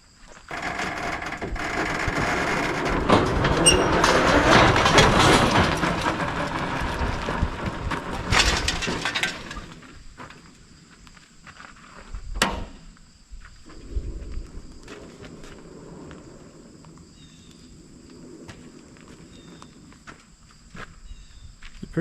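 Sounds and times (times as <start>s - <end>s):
tractor and trailer clattering: 0.5s - 10.8s.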